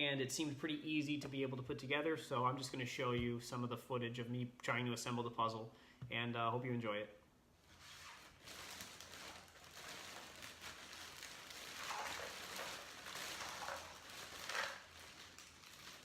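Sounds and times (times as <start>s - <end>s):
cardboard puzzle pieces rustling: 11.7s - 16.0s.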